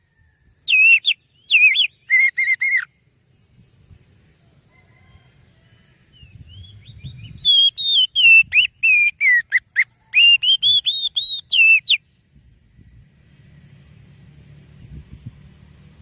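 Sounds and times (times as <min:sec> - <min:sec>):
bird singing whistled notes: 0:00.6 - 0:03.9, 0:05.6 - 0:13.0
faint low rumble: 0:12.0 - 0:16.0.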